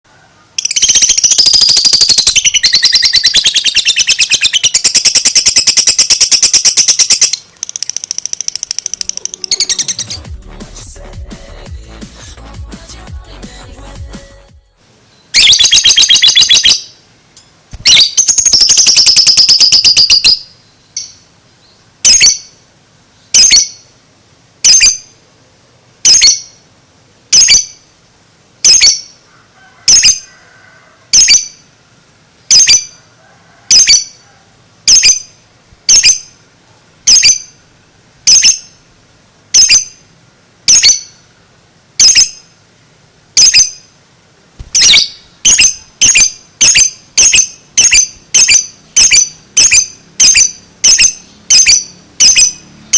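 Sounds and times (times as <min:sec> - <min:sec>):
lovebird chattering trills: 0:00.5 - 0:10.3, 0:15.4 - 0:17.0, 0:17.8 - 0:21.2, 0:37.0 - 0:37.6, 0:38.3 - 0:38.8, 0:44.6 - 0:52.9.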